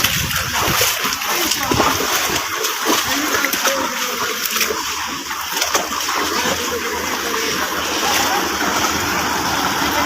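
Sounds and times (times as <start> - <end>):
floodwater rushing and splashing: 0.0 - 10.0.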